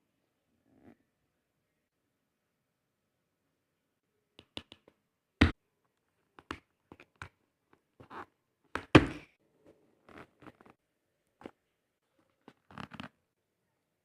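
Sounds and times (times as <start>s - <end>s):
sharp clicks and taps: 4.4s - 5.6s.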